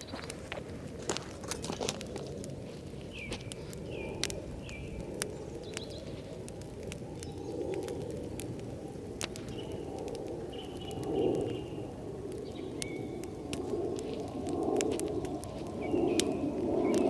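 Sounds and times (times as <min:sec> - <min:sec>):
birds high chirps: 0:03.1 - 0:06.3, 0:09.4 - 0:13.2, 0:15.2 - 0:17.0.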